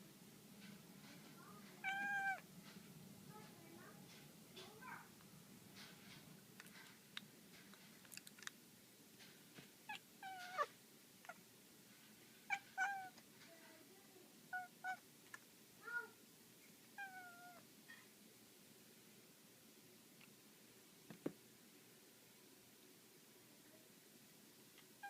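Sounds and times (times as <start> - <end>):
cat meowing and chirping: 1.8 - 2.4, 9.9 - 11.4, 12.5 - 13.2, 14.5 - 15.0, 17.0 - 17.6.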